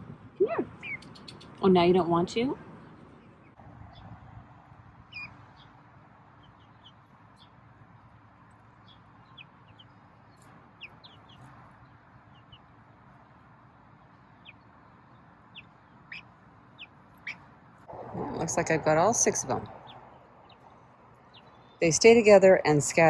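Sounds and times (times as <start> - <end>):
chicks peeping: 0.6 - 1.6, 5.1 - 5.8, 8.8 - 11.5, 15.5 - 17.4.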